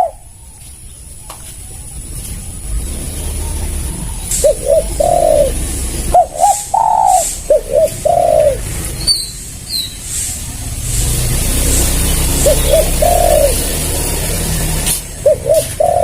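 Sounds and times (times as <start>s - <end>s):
dove cooing: 0.0s - 0.3s, 3.1s - 8.8s, 12.3s - 13.8s, 15.2s - 16.0s
small bird chirping: 3.2s - 10.1s.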